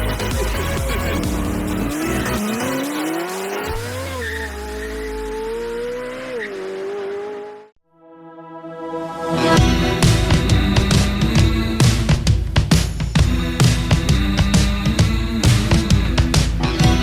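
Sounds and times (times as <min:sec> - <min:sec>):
electronic music with a beat: 0:00.0 - 0:05.8, 0:09.3 - 0:17.0
high-revving car engine: 0:00.0 - 0:07.8.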